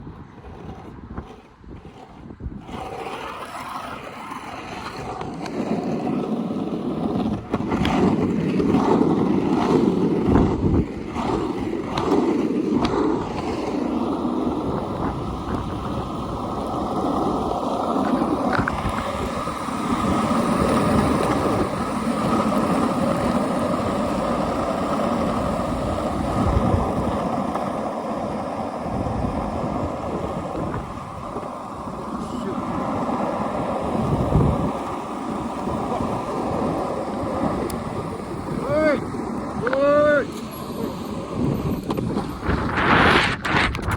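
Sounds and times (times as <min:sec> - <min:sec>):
skateboard wheels rolling on asphalt: 0:00.0 - 0:43.9
wind buffeting microphone: 0:00.0 - 0:43.9.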